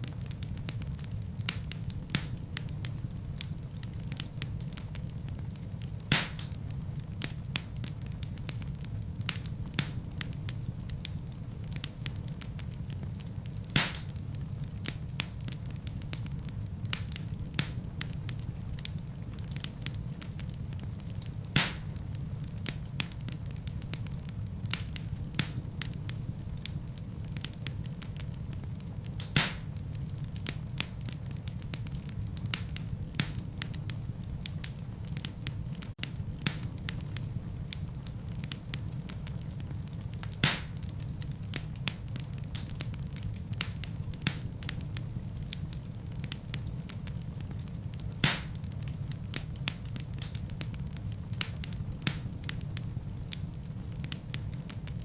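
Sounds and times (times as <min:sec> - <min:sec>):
sharp fire pops: 0:00.0 - 0:55.0
wood fire crackling: 0:00.0 - 0:55.0.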